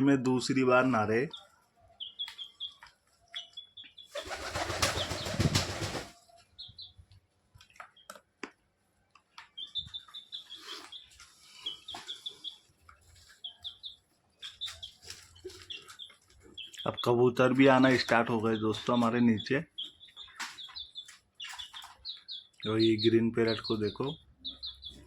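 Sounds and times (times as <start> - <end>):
small birds chirping: 0.0 - 25.0
parrot wings flapping and splashing: 4.2 - 6.1.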